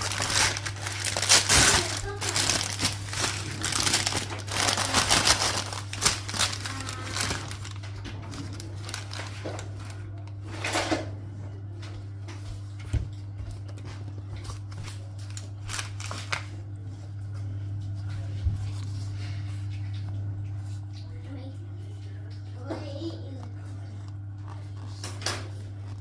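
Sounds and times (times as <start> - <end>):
food packaging rustling and crinkling: 0.0 - 11.1, 12.6 - 20.9
steady low hum: 0.0 - 26.0.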